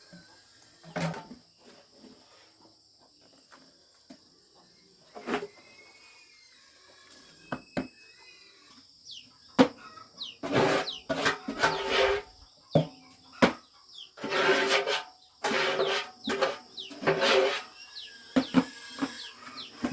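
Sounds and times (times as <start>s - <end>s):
faint bird chirps: 3.2s - 14.2s, 16.2s - 19.9s
high insect drone: 3.2s - 19.9s.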